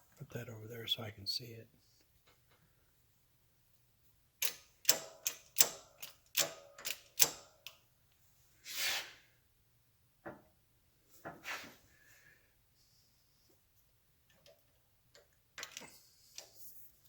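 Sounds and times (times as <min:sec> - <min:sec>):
short hiss: 0:08.6 - 0:09.3.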